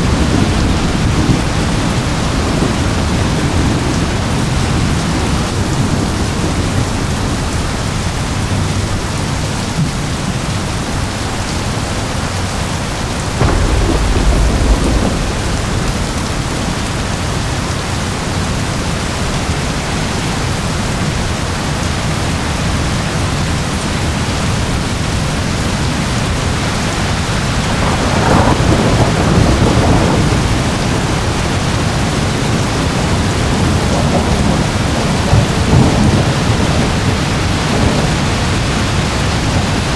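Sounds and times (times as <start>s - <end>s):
steady rain falling: 0.0s - 39.9s
rumble of thunder: 13.4s - 19.3s, 27.6s - 31.4s
low thunderclap: 13.4s - 19.6s, 27.6s - 31.4s.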